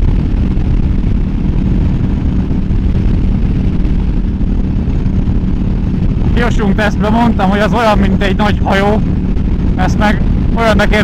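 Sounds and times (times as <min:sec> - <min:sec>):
motorcycle engine running: 0:00.0 - 0:11.0
wind rush on microphone: 0:00.0 - 0:11.0.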